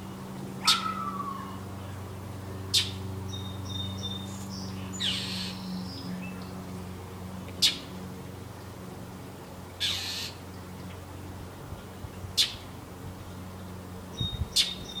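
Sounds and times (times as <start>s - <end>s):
low hum: 0.0s - 14.6s
bird scolding calls: 0.6s - 1.6s, 9.8s - 10.4s.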